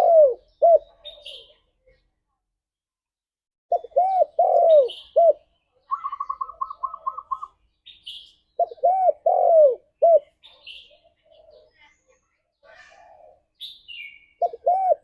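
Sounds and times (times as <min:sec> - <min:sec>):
dove cooing: 0:00.0 - 0:01.5, 0:03.7 - 0:07.6, 0:08.6 - 0:10.4, 0:14.4 - 0:15.0
birds chirping: 0:00.0 - 0:02.4, 0:03.7 - 0:15.0.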